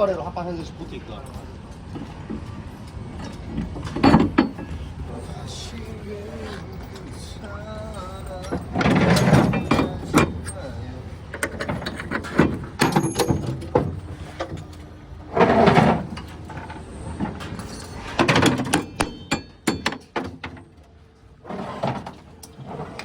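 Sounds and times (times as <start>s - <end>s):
knocks and clanks of hardware: 3.2s - 4.7s, 8.4s - 10.6s, 11.3s - 14.8s, 15.4s - 20.8s
metallic ringing: 12.8s - 13.8s, 18.7s - 20.2s.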